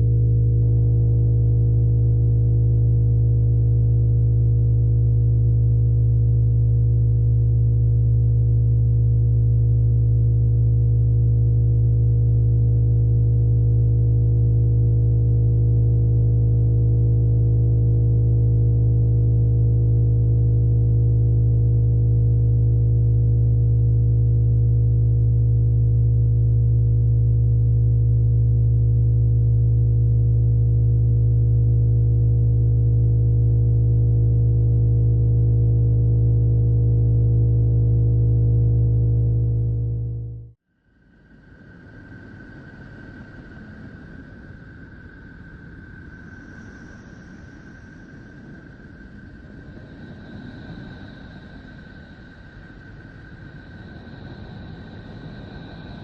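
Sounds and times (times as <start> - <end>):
low electronic drone: 0.0 - 40.6.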